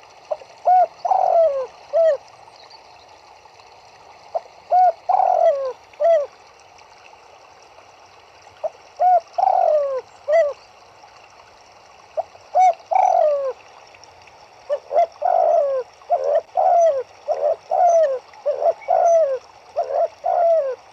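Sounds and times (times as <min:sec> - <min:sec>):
faint background hiss: 0:00.0 - 0:20.9
turtledove cooing: 0:00.3 - 0:02.2, 0:04.7 - 0:06.3, 0:09.0 - 0:10.6, 0:12.6 - 0:13.6, 0:14.7 - 0:20.8.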